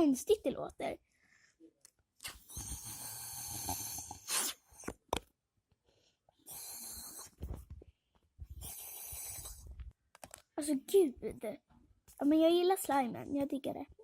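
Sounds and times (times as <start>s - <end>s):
breathy blowing into slime: 2.2s - 5.0s, 6.4s - 7.4s, 8.5s - 9.8s.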